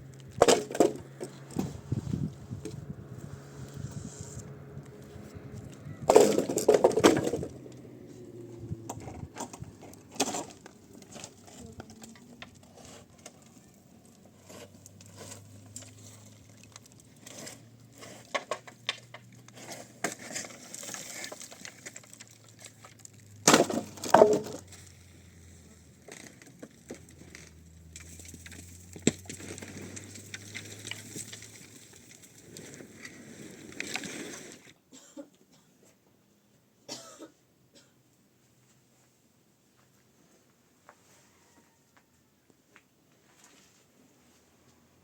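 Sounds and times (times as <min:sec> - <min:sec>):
rustling of objects handled: 0:00.0 - 0:34.8, 0:38.5 - 0:44.9
objects knocking and clattering: 0:00.4 - 0:01.9, 0:06.0 - 0:07.8, 0:18.2 - 0:24.7.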